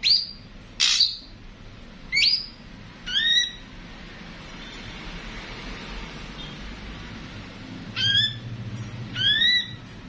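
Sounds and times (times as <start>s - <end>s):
faint high bird chirp: 0.0s - 1.4s, 2.1s - 3.7s, 7.9s - 8.5s, 9.1s - 9.9s.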